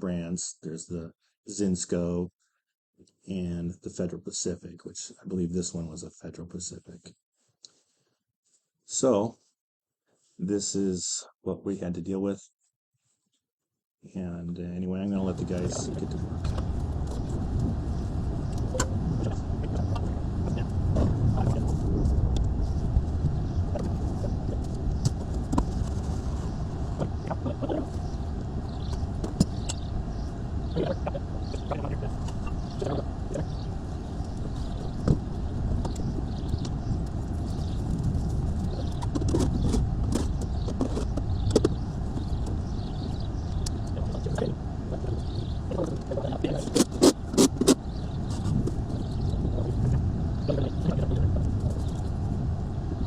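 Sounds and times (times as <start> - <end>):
low rumble: 15.2 - 53.0.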